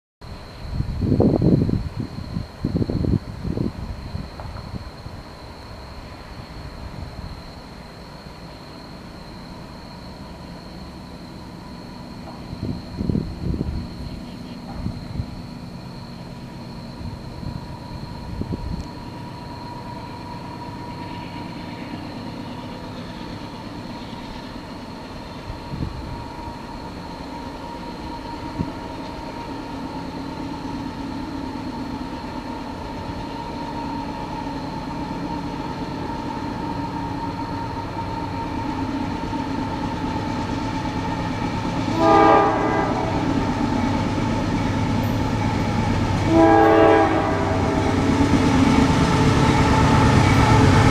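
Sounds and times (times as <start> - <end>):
diesel locomotive engine rumble: 0.2 - 50.9
locomotive air horn blast: 41.9 - 43.4, 46.2 - 48.0.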